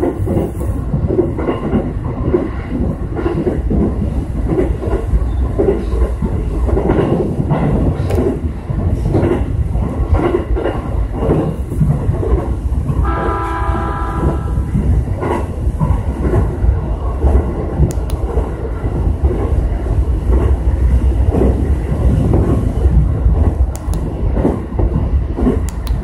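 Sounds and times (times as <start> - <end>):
train low rumble: 0.0 - 26.0.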